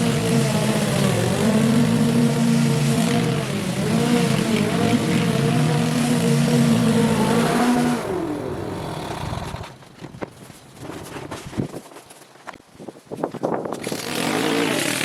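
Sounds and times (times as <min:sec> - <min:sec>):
small petrol engine running: 0:00.0 - 0:09.8
rustling: 0:09.6 - 0:13.9.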